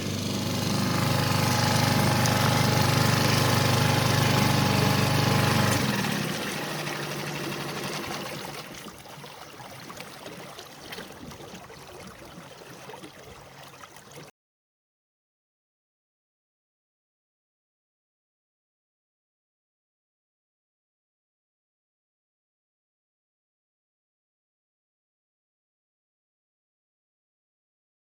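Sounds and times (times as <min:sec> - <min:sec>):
outboard motor running: 0:00.0 - 0:14.3
water lapping around hull: 0:00.8 - 0:14.3.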